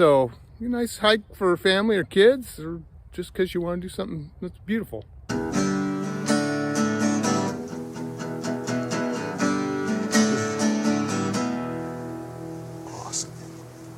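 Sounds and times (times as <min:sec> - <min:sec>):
acoustic guitar strumming: 0:05.3 - 0:13.9.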